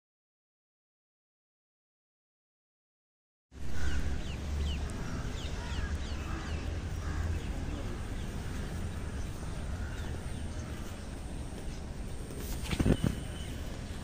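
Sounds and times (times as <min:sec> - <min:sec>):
steady low rumble: 0:03.6 - 0:12.4
birds chirping: 0:03.6 - 0:14.0.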